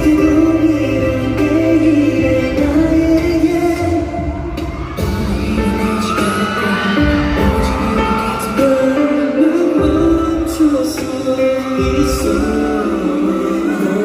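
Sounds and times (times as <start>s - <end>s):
live pop music: 0.0s - 14.0s
crowd whooping: 4.2s - 9.7s.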